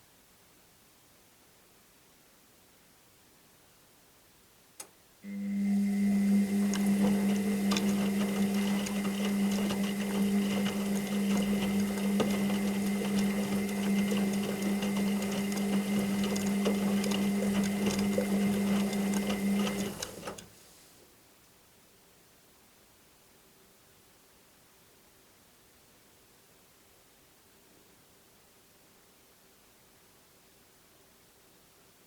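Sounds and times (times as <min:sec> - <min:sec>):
faint high whine: 0:05.2 - 0:09.6
washing machine motor humming: 0:05.2 - 0:20.5.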